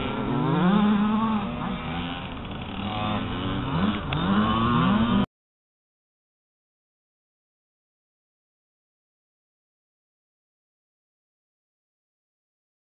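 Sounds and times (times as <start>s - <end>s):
motorcycle engine revving: 0.0s - 5.3s.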